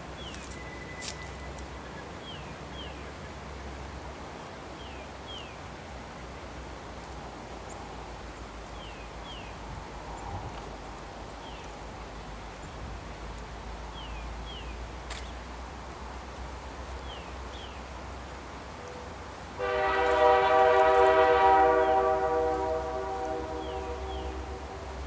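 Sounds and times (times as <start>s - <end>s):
locomotive air horn blast: 19.6s - 25.0s.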